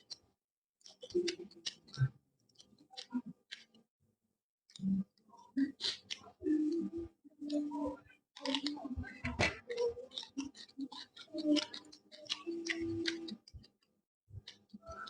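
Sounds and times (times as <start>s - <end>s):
chewing mouth clicks and smacks: 9.7s - 13.8s.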